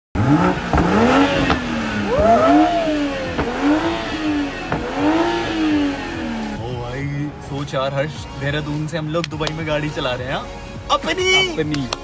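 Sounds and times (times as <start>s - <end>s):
exhaust pops: 0.2s - 6.3s
car engine revving: 0.2s - 9.2s.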